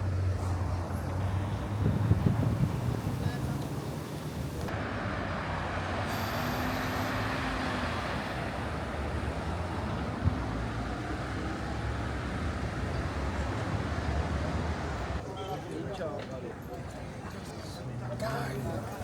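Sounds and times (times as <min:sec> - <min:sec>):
vehicles passing on city street: 0:00.0 - 0:19.0.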